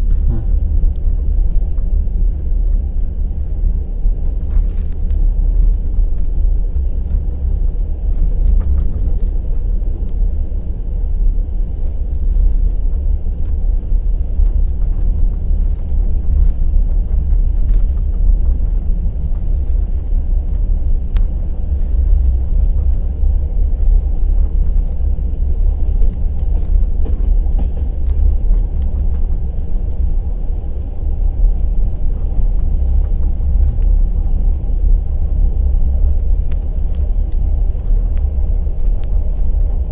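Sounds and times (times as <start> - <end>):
train wheels rumbling: 4.0 - 39.9
sharp clicks and rattles: 4.3 - 39.9.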